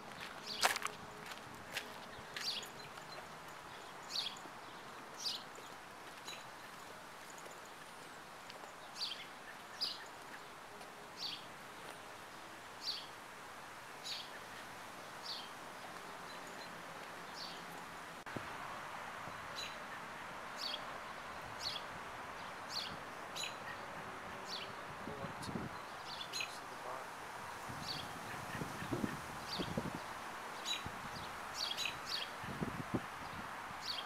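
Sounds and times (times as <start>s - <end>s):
background hiss: 0.0s - 34.0s
bird chirping: 2.0s - 10.5s, 25.7s - 27.0s, 30.6s - 32.6s.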